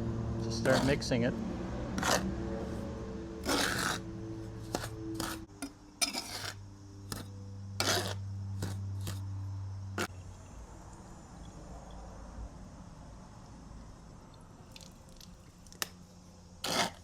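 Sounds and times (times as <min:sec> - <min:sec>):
trowel scraping mortar: 0:00.6 - 0:01.1, 0:02.0 - 0:02.8, 0:03.4 - 0:09.2, 0:16.6 - 0:17.0.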